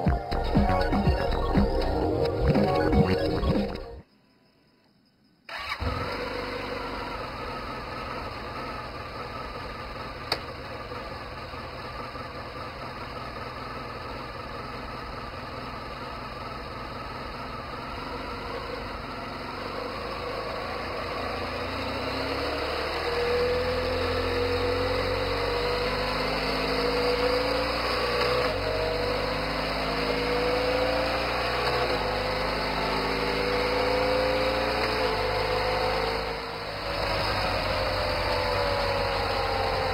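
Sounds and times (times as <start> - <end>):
gear changes: 5.5 - 11.4, 17.6 - 39.9
motorcycle engine revving: 5.5 - 39.9.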